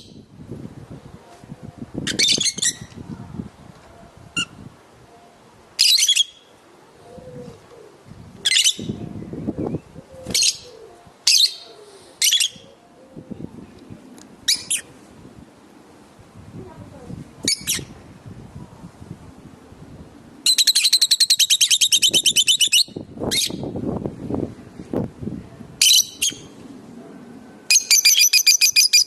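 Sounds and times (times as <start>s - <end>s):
lovebirds screeching: 2.1s - 2.9s, 5.8s - 6.4s, 8.4s - 9.0s, 10.2s - 12.8s, 14.5s - 15.0s, 20.4s - 23.6s, 27.7s - 29.0s.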